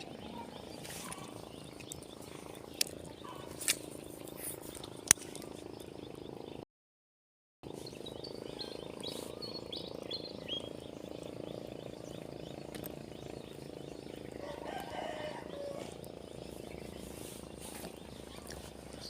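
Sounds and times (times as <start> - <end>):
frogs croaking: 0.0 - 6.3, 8.0 - 19.0.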